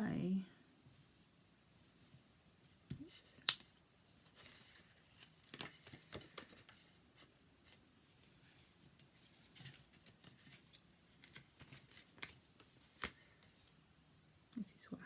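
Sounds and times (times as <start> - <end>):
paper rustling on a desk: 4.2 - 13.8.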